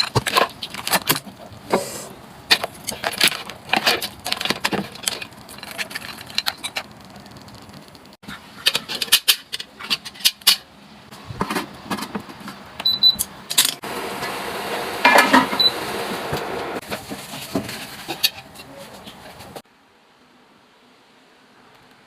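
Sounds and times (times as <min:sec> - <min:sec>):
dishes and utensils clinking: 0:15.0 - 0:15.7.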